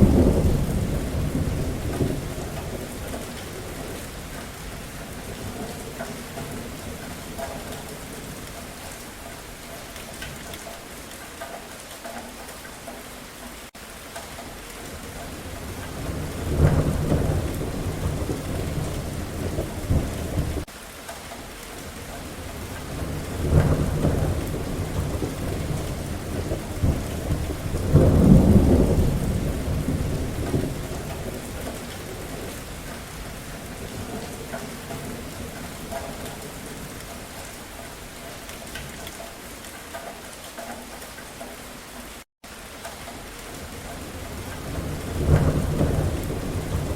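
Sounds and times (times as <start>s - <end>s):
thunder rolling: 0.0s - 8.5s, 15.3s - 20.7s, 22.4s - 37.4s, 43.7s - 46.9s
steady rain: 0.0s - 46.9s.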